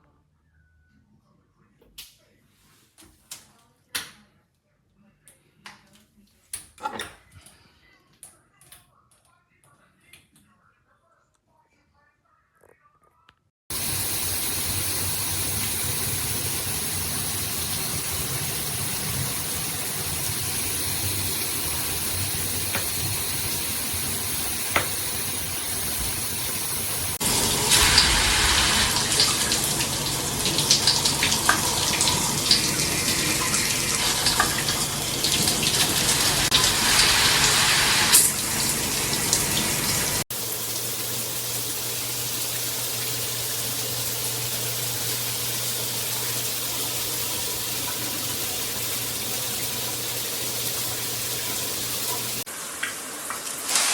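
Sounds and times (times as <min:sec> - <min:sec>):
shower head spraying water: 0:13.7 - 0:52.5, 0:53.3 - 0:53.9.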